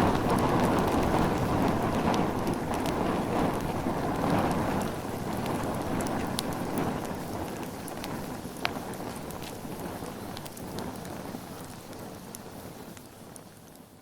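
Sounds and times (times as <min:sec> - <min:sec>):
bonfire flames rushing: 0:00.0 - 0:14.0
fire crackling: 0:00.0 - 0:14.0.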